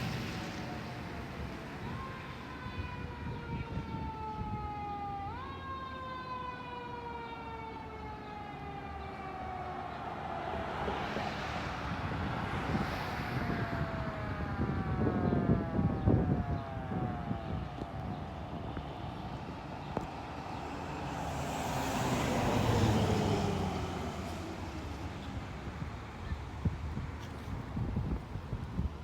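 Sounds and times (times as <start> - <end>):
fire truck siren: 0.0 - 25.9
engine and road rumble: 0.0 - 29.0.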